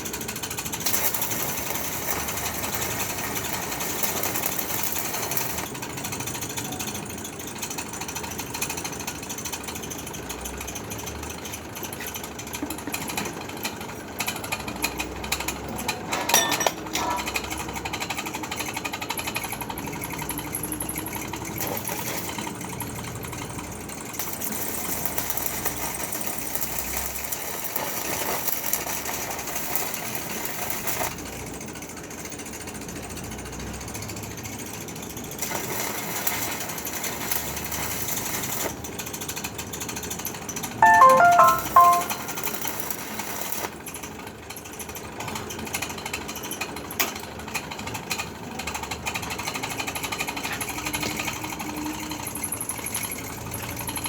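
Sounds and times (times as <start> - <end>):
welding arc crackling: 0.7 - 5.7, 24.2 - 31.2, 35.4 - 38.7.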